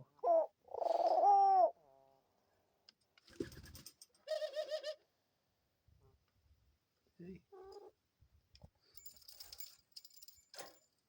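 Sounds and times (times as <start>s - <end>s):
dove calling: 0.2s - 1.8s.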